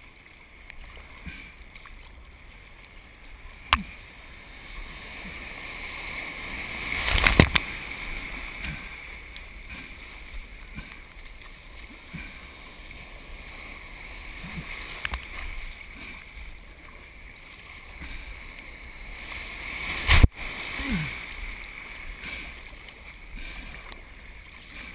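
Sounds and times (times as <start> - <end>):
water rushing and splashing: 0.0 - 24.9
loud sharp splash: 19.9 - 21.2.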